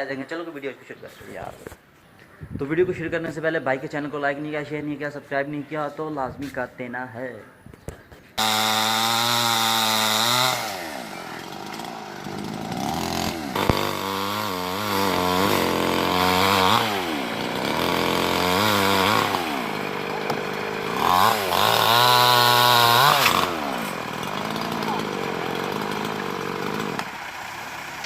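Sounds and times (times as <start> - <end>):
chainsaw revving: 8.4 - 28.0.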